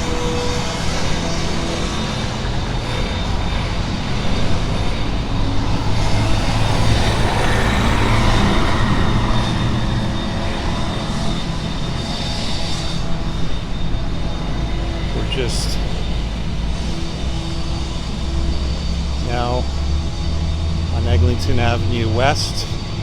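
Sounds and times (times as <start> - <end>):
traffic engine drone: 0.0 - 23.0
vehicle passing close: 3.7 - 12.1, 17.3 - 23.0.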